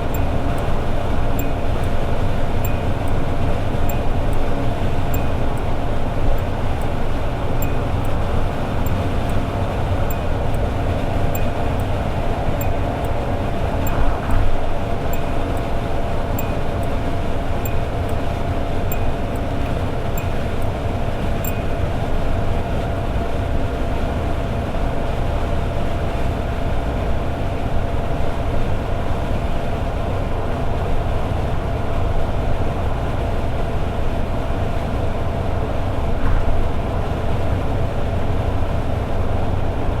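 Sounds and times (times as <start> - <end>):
faint regular ticking: 0.0 - 22.3
car engine drone: 0.0 - 40.0
road and tyre rumble: 0.0 - 40.0.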